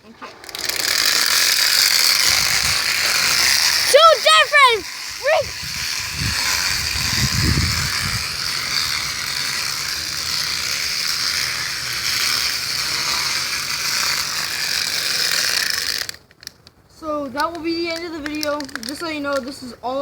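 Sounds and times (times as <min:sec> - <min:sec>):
bicycle spokes clattering on bottle: 0:04.8 - 0:16.6.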